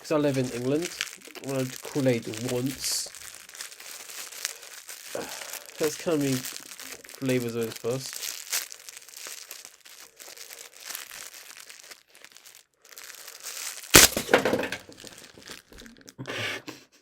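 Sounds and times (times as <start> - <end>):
packaging rustling: 0.0 - 16.1
bottles clattering over: 14.0 - 15.2
small bottles clinking: 14.0 - 15.9.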